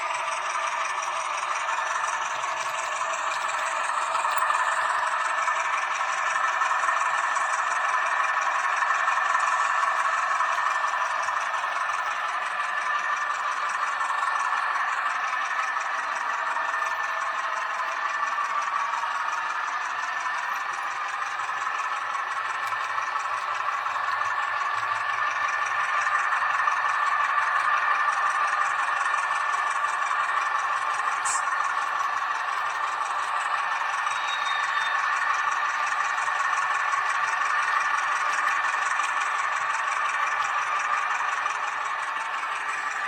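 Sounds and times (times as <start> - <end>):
model train whirring on track: 0.0 - 43.0.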